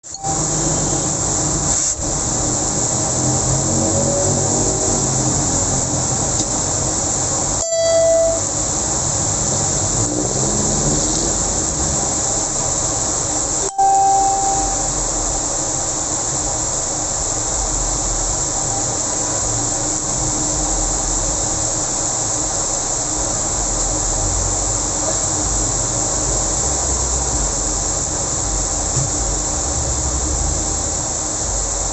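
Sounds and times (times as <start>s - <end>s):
passing traffic rumble: 0.4s - 7.6s
car horn honks: 7.6s - 8.5s.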